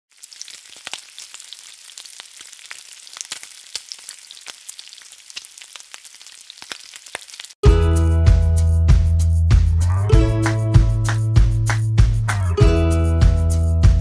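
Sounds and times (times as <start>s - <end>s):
crackles and pops: 0.1s - 7.6s
food sizzling: 0.1s - 7.6s.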